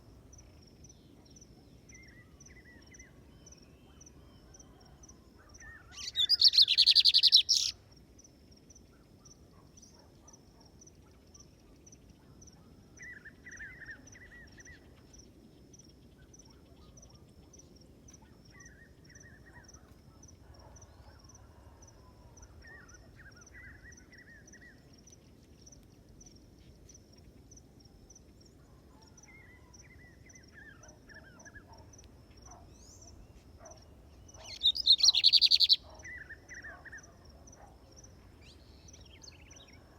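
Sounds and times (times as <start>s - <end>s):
soft bird chirping: 5.5s - 7.8s, 28.4s - 39.9s
bird high-pitched trill: 6.0s - 7.7s, 34.5s - 35.8s.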